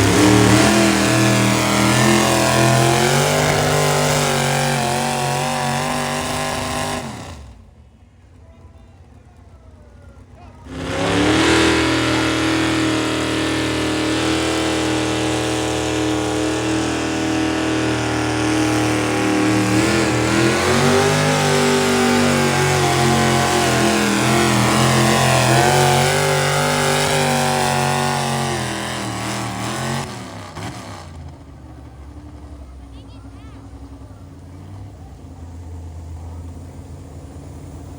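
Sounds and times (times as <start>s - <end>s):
engine running at high revs: 0.0s - 7.8s, 10.4s - 37.9s.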